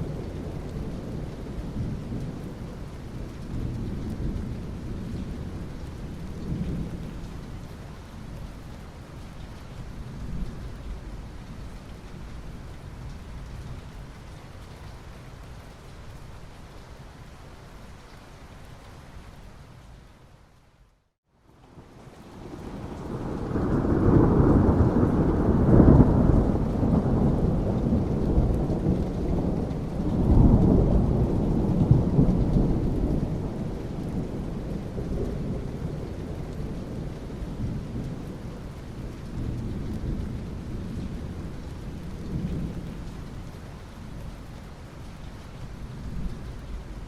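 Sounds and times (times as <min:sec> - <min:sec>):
steady rain: 0:00.0 - 0:47.0
rolling thunder: 0:22.4 - 0:43.2.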